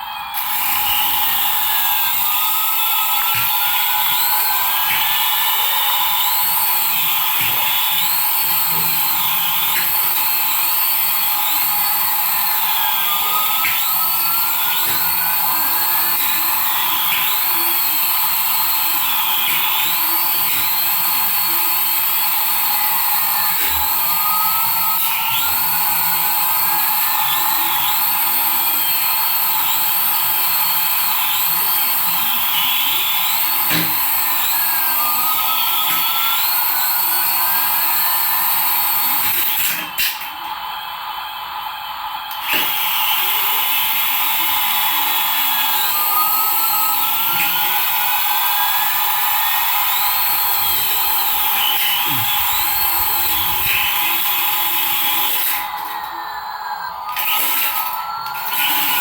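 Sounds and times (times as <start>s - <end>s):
toy electronic sound effects: 0.0s - 40.6s, 42.3s - 59.0s.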